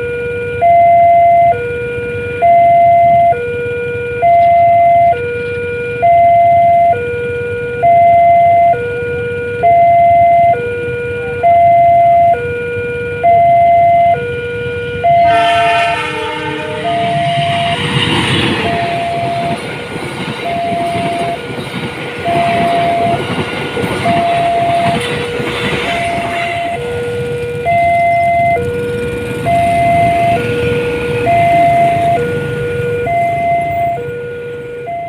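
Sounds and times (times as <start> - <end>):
level crossing two-tone alarm: 0.0 - 35.0
train horn: 13.7 - 19.8, 22.2 - 23.4, 24.0 - 35.0.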